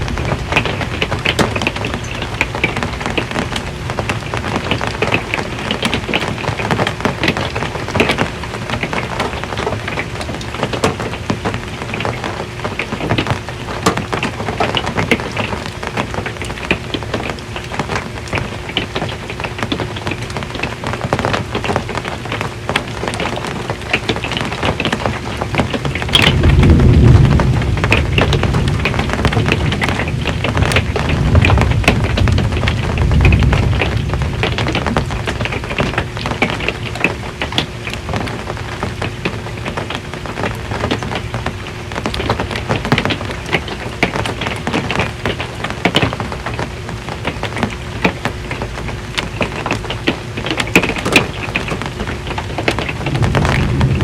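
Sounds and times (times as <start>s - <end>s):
thunder rumble: 0.0s - 10.8s, 20.0s - 43.4s, 50.7s - 54.0s
rain on a metal roof: 0.0s - 54.0s.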